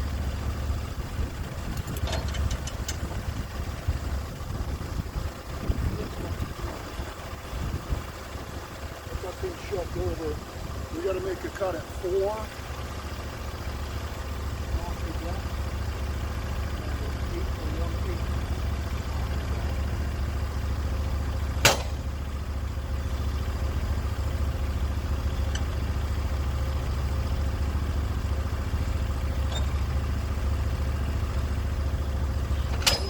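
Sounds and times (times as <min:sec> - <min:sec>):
sawmill engine running: 0:00.0 - 0:33.0
sharp knock: 0:21.6 - 0:22.0.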